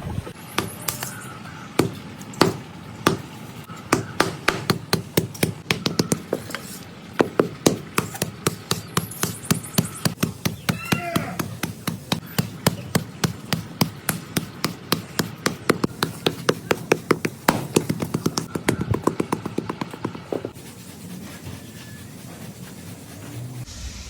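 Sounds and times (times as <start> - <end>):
wooden paddle knocking clay pot: 3.9 - 6.6, 7.2 - 20.6.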